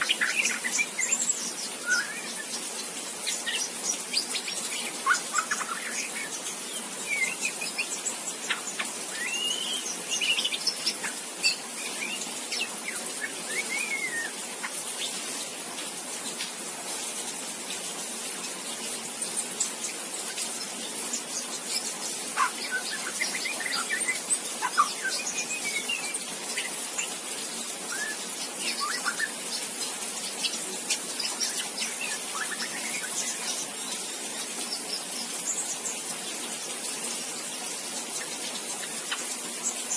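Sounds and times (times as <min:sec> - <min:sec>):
young bird chirping and whistling: 0:00.0 - 0:02.6, 0:03.3 - 0:14.4, 0:22.4 - 0:27.2, 0:27.8 - 0:29.4, 0:30.4 - 0:33.7
steady high hiss: 0:00.0 - 0:16.9.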